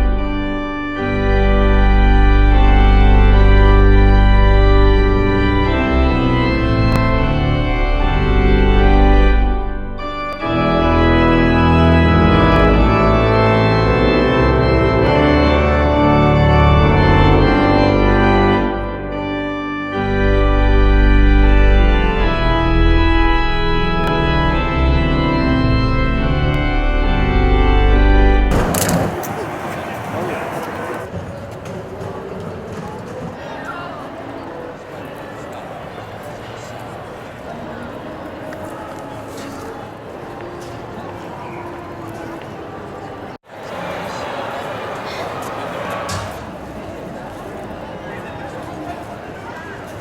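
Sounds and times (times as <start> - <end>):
slow organ chords: 0.0 - 29.2.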